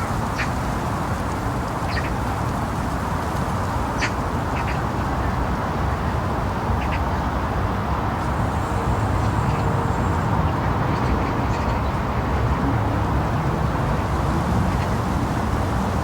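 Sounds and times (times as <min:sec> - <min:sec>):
low outdoor rumble: 0:08.0 - 0:16.0.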